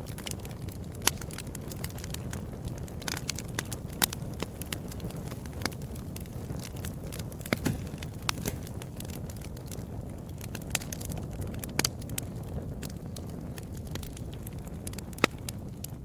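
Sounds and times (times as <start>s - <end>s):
wood fire crackling and popping: 0.0s - 16.0s
fire low rush: 6.4s - 9.4s.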